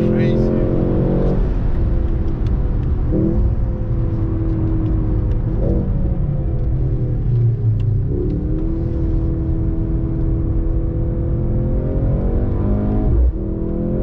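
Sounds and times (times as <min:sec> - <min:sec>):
car engine revving hard: 0:00.0 - 0:01.6.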